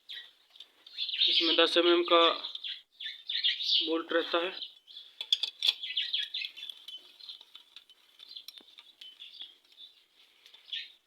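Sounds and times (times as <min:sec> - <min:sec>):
birds chirping: 0:00.0 - 0:11.0
metallic clicks of hand tools: 0:05.2 - 0:09.2.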